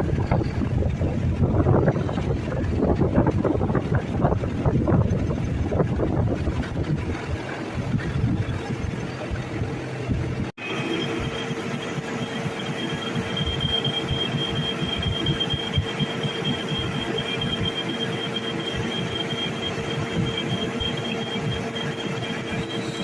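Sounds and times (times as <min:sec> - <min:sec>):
lathe high-pitched whine: 0:07.2 - 0:23.0.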